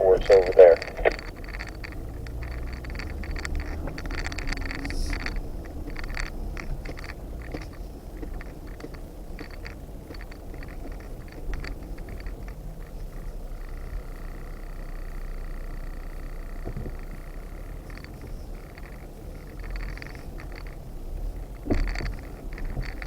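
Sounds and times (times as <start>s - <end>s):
steady low rumble: 0.0s - 12.2s.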